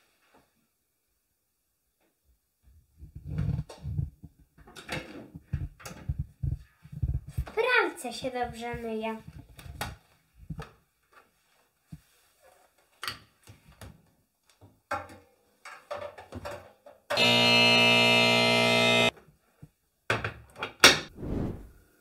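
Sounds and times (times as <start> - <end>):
rich electronic tone: 17.2 - 19.1.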